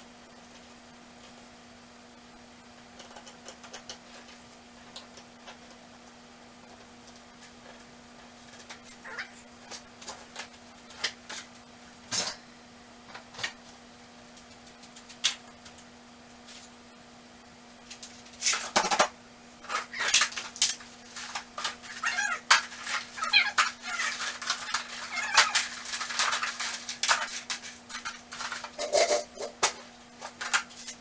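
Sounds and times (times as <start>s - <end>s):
faint steady hum: 0.0s - 31.0s
hand tools clinking and rattling: 19.6s - 31.0s.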